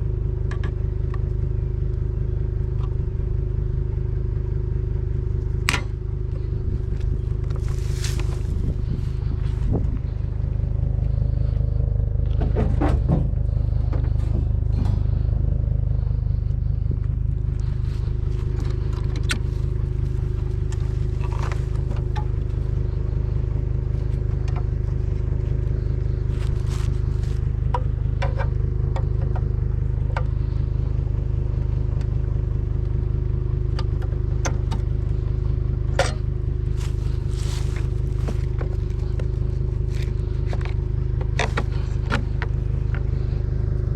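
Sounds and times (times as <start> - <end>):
truck engine rumbling: 0.0 - 43.9.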